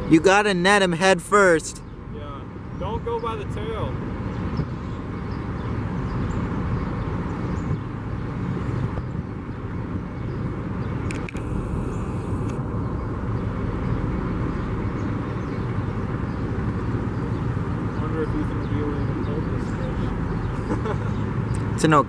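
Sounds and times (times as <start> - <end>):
low rumbling outdoor background noise: 0.0 - 22.0
brief click: 11.1 - 11.5.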